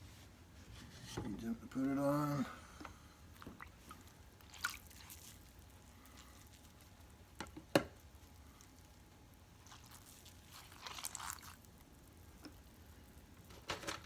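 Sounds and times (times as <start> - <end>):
wet clay squishing: 3.3 - 7.2, 8.0 - 12.7.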